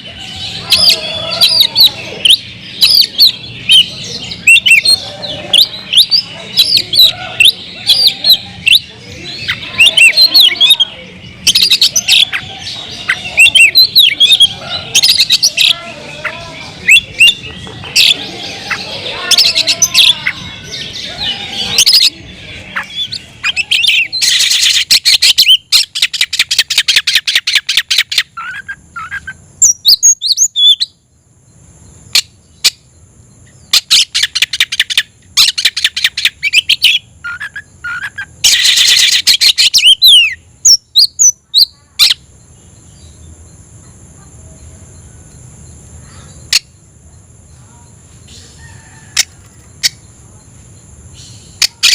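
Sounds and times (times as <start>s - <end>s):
bird whistled phrases: 0.0s - 31.0s, 33.7s - 42.2s
cricket chirring: 0.0s - 51.9s.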